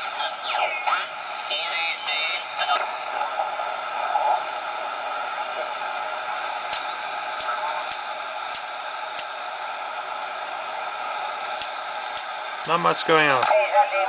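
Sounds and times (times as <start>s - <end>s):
radio static hiss: 0.0s - 14.0s
sharp clicks: 6.7s - 9.4s, 11.6s - 12.8s.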